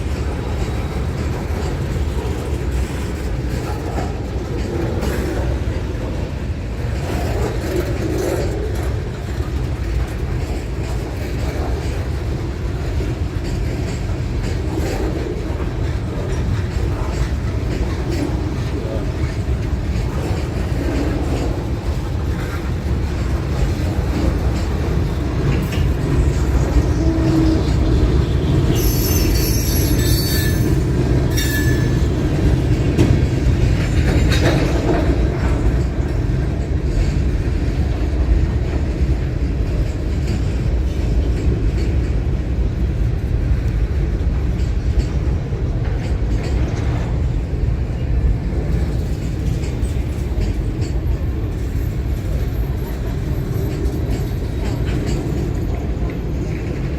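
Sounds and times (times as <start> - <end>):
train rumbling past: 0.0 - 56.9
wheels squealing on rail: 13.6 - 33.1, 48.7 - 56.9.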